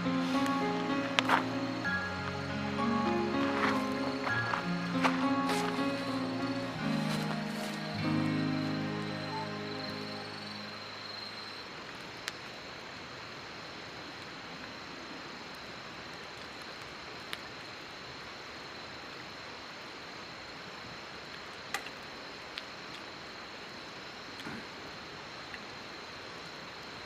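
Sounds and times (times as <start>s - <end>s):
campfire hissing: 0.0s - 27.0s
faint high-pitched tone: 1.0s - 11.8s.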